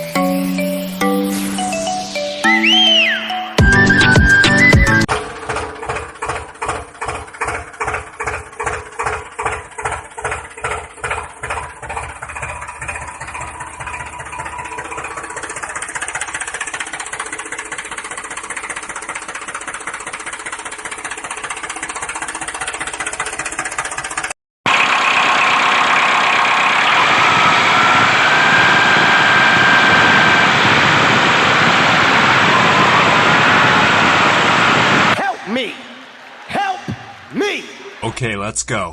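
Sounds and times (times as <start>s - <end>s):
engine chugging: 0.0s - 37.2s
loud hissy noise: 28.3s - 36.2s.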